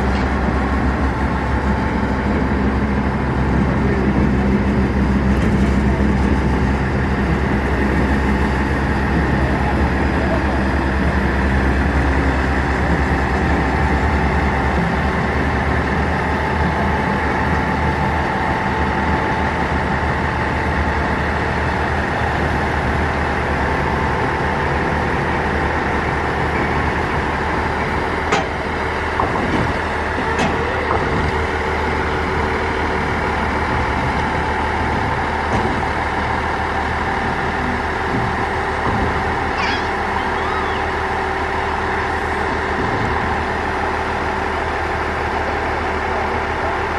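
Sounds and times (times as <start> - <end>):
diesel engine idling: 0.0 - 46.9.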